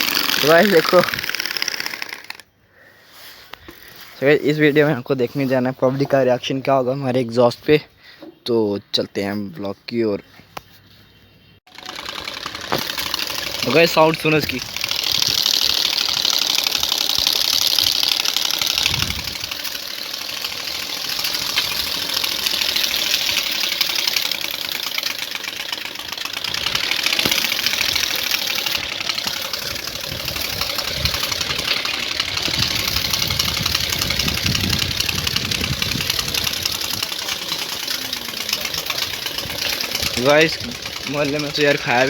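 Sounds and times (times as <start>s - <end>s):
motorcycle exhaust revving: 11.7s - 42.0s.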